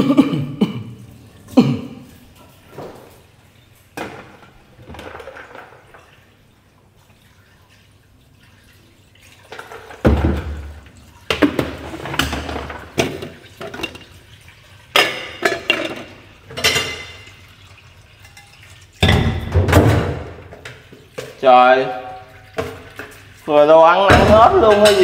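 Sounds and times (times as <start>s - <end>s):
dishes and pots clinking: 3.9s - 6.2s, 9.4s - 21.4s, 24.1s - 25.0s.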